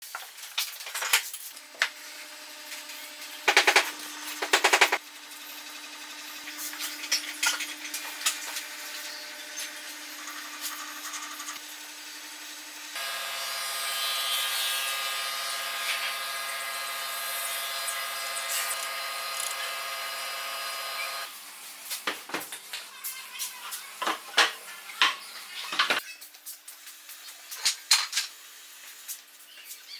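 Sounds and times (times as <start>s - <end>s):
power tool motor running: 1.5s - 21.3s.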